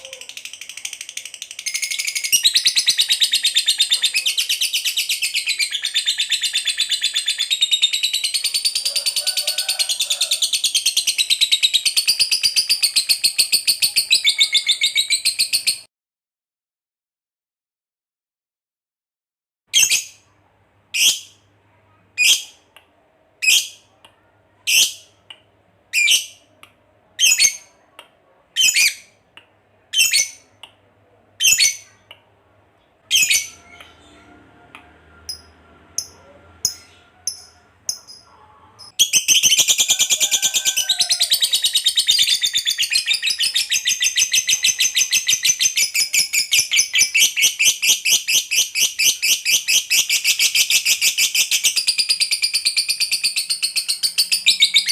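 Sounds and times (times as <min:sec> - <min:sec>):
lovebird chirping: 0:00.0 - 0:08.9, 0:32.8 - 0:40.3.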